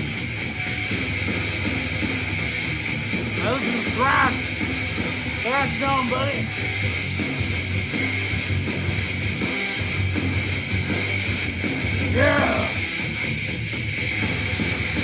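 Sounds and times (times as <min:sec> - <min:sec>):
thrash metal music: 0:00.0 - 0:15.0
man saying yeah: 0:03.4 - 0:04.6, 0:05.4 - 0:06.5, 0:12.1 - 0:12.8.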